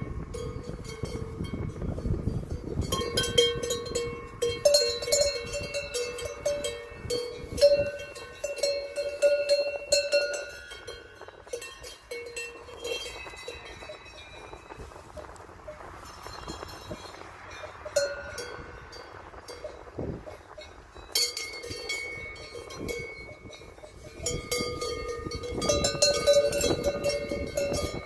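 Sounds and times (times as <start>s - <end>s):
cowbells clanking: 0.0s - 28.0s.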